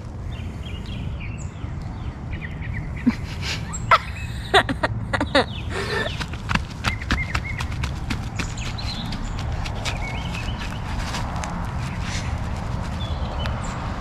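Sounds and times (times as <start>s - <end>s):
birds chirping: 0.0s - 14.0s
low outdoor rumble: 0.0s - 14.0s
sharp taps: 6.1s - 10.8s.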